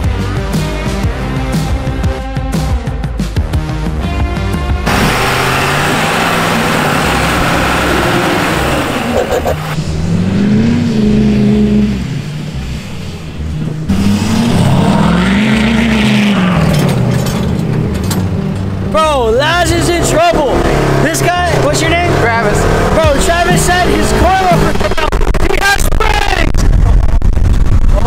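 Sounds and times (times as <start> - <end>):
engine and terrain rumble: 0.0 - 28.0
truck engine revving: 3.8 - 26.0.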